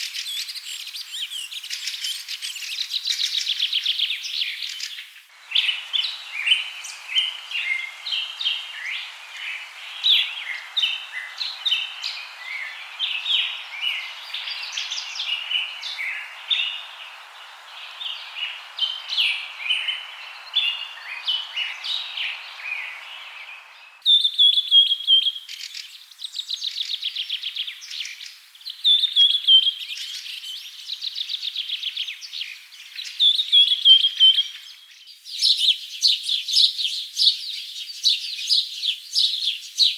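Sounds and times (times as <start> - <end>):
rapid trilled bird phrases: 0.0 - 24.0
songbirds chirping and singing: 0.0 - 39.9
steady background hiss: 0.0 - 39.9.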